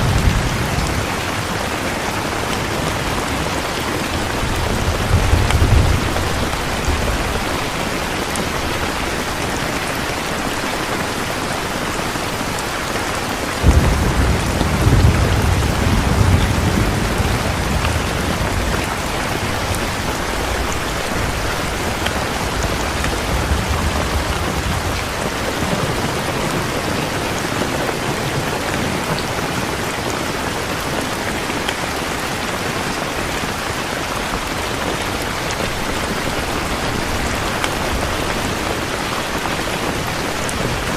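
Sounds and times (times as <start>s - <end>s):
thunder rumble: 0.0s - 9.7s, 13.6s - 29.4s
steady rain: 0.0s - 40.9s.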